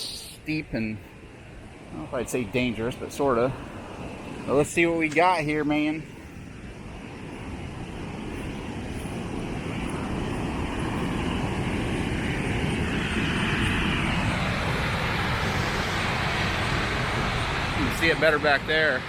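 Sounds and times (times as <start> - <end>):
waterfall roaring: 8.6 - 19.0.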